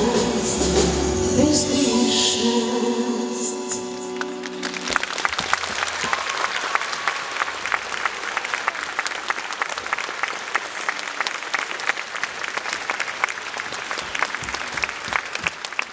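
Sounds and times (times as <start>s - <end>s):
audience applauding: 4.1s - 15.9s.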